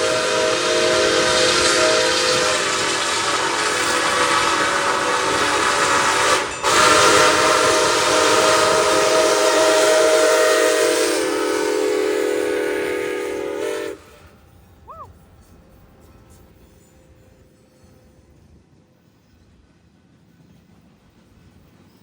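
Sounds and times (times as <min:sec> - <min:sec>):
locomotive air horn blast: 0:00.0 - 0:14.4.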